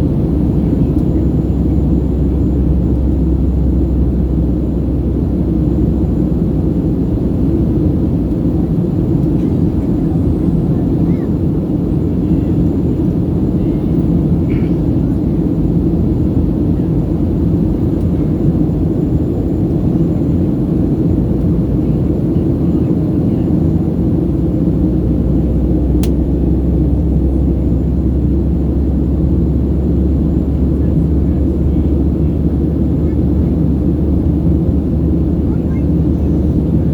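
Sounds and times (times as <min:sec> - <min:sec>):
low hum: 0:00.0 - 0:11.2
airplane cabin rumble: 0:00.0 - 0:36.9.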